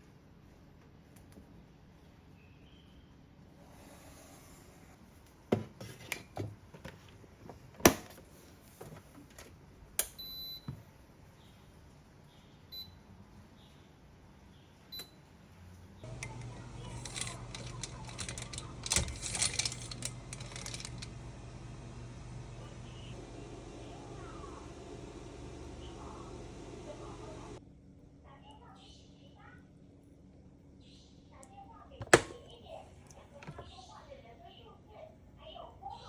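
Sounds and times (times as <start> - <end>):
steady appliance hum: 15.8 - 28.2, 31.8 - 35.4
rapid clatter of clicks: 16.1 - 21.2.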